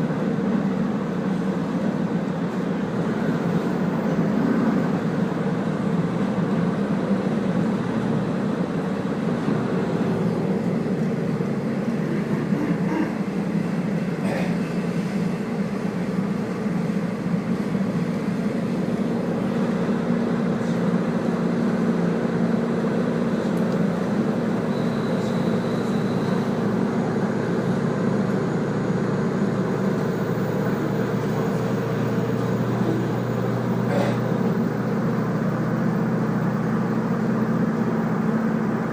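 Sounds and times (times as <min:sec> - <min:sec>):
diesel railcar engine drone: 0:00.0 - 0:38.9
train wheels rolling on rails: 0:00.0 - 0:38.9
rail joint clicks: 0:10.2 - 0:13.2, 0:23.4 - 0:27.2.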